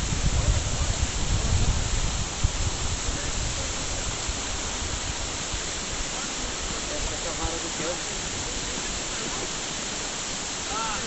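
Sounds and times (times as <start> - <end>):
low rumbling on microphone: 0.0 - 7.2
steady rushing hiss: 0.0 - 11.0.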